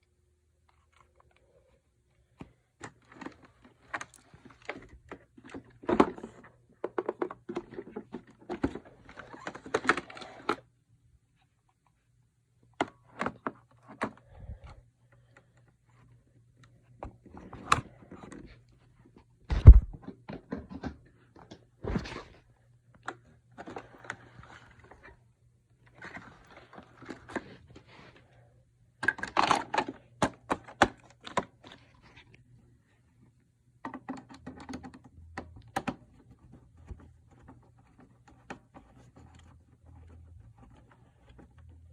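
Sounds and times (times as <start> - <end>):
heavy thunk: 19.5 - 20.0.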